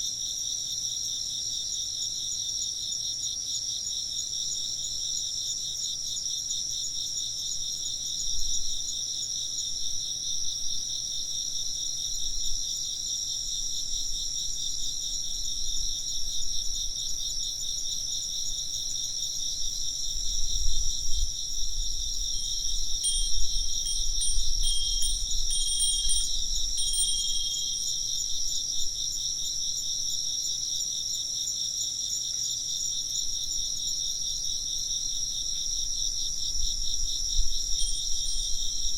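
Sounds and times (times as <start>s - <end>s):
insects chirping: 0.0s - 38.9s
wind bell ringing: 22.3s - 28.5s, 37.8s - 38.9s.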